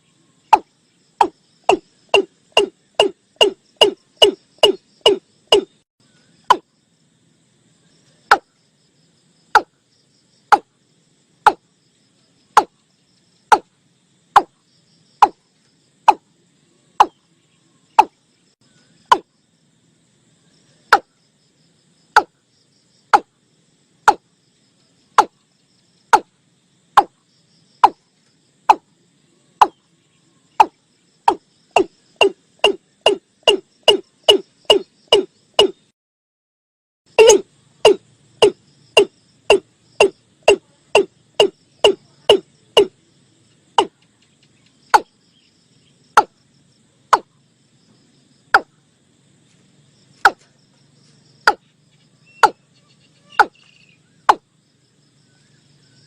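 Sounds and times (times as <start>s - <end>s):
watercock calling: 53.3s - 53.6s.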